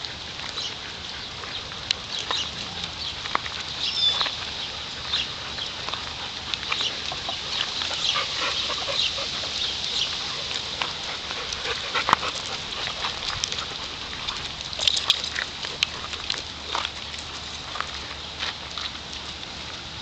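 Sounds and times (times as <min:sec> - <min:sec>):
dogs: 0:00.0 - 0:19.5
high animal chirps and calls: 0:03.8 - 0:05.8.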